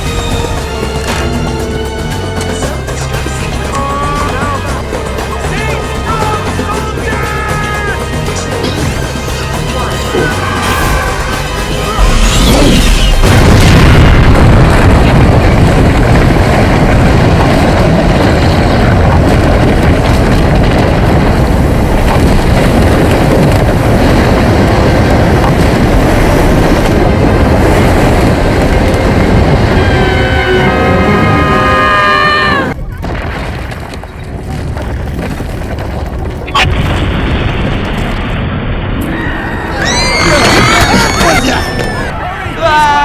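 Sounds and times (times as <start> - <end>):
crash: 0.0 - 29.8
floodwater rushing: 0.0 - 34.4.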